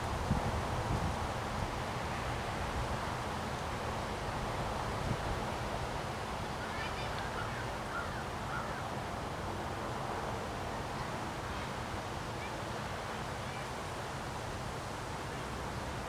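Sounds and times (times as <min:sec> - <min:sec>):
strong wind rumbling on microphone: 0:00.0 - 0:02.0.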